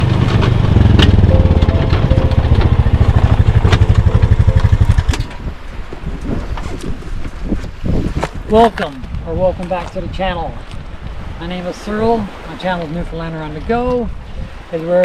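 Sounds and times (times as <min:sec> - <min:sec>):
engine running with fast pulse: 0:00.0 - 0:05.5.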